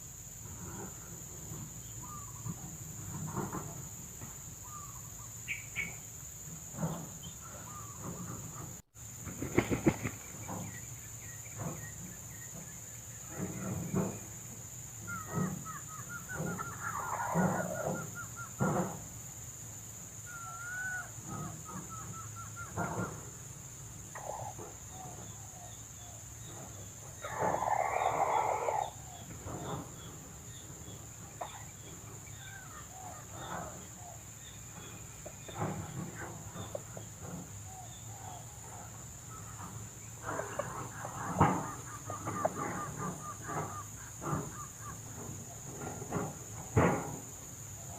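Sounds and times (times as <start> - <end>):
bird calls: 0.0 - 47.9
junglefowl clucking: 15.0 - 18.9, 20.2 - 23.3, 24.1 - 25.7, 27.0 - 29.8, 31.3 - 34.4, 35.2 - 45.6.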